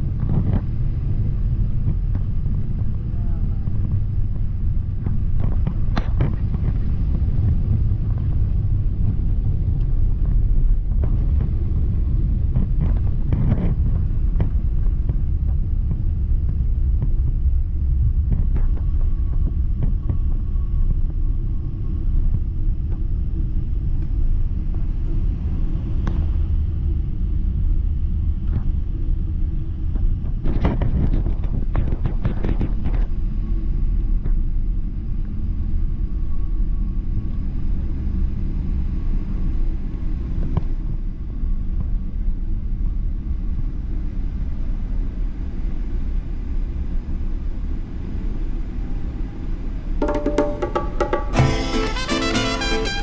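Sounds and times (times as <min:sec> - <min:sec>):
vehicle rumble from inside: 0:00.0 - 0:50.0
knocks and rattles: 0:50.0 - 0:51.5.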